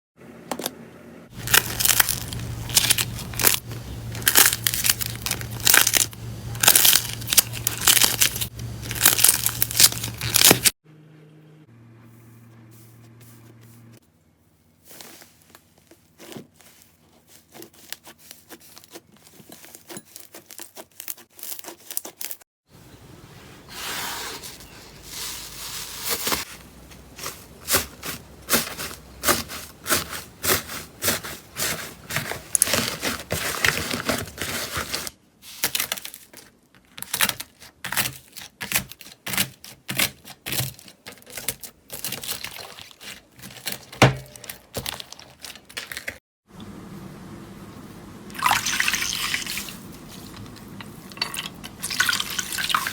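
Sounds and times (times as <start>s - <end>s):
slime crackling and popping: 1.4s - 3.6s, 4.2s - 10.7s.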